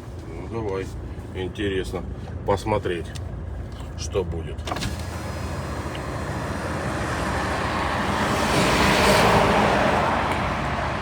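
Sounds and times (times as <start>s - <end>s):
vehicle passing on road: 4.9s - 11.0s.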